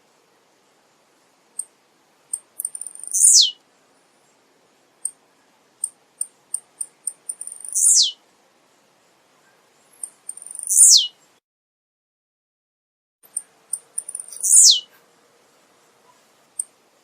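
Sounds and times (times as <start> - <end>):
bird song with high ticks: 1.6 - 3.6, 5.0 - 8.2, 9.4 - 11.4, 13.2 - 15.0, 16.1 - 16.8.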